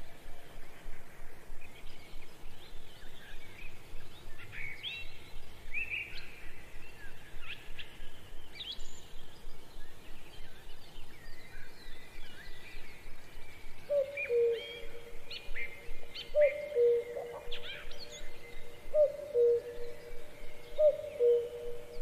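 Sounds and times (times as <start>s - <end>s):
birds chirping: 8.2s - 22.0s.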